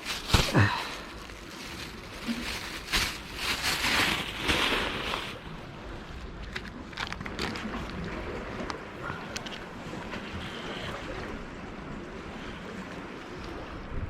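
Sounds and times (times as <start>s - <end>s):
sea water washing: 0.0s - 14.0s
wind on microphone: 7.2s - 14.0s.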